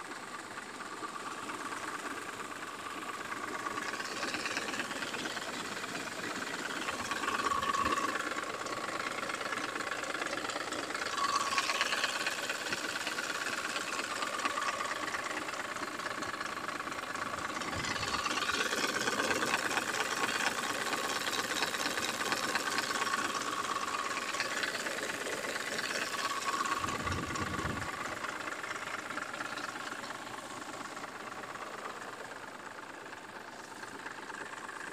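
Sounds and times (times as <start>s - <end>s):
car engine knocking: 0.0s - 34.9s.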